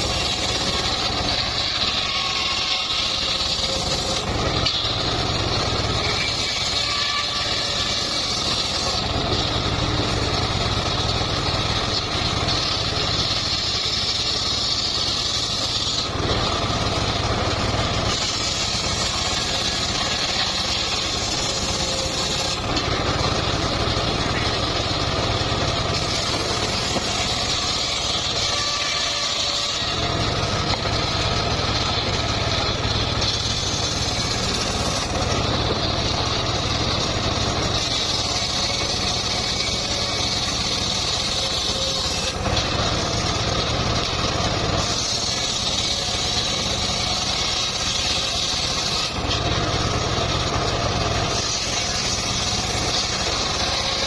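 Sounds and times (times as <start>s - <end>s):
engine-driven saw cutting wood: 0.0s - 54.0s.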